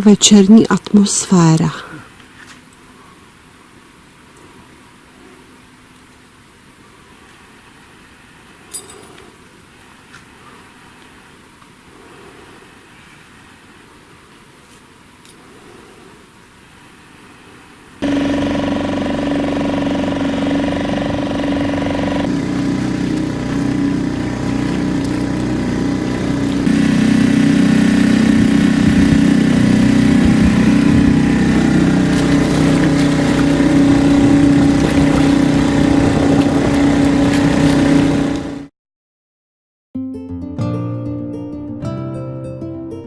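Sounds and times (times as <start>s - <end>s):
boat engine humming: 18.0s - 38.7s.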